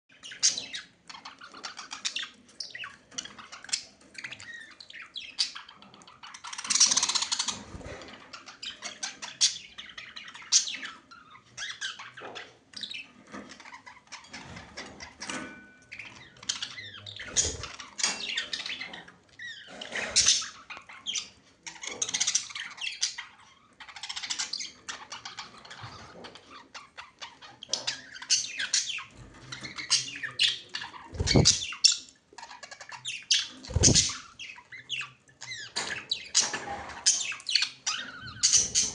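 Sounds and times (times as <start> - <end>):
budgerigars chattering: 0.2 - 13.1, 15.9 - 38.9.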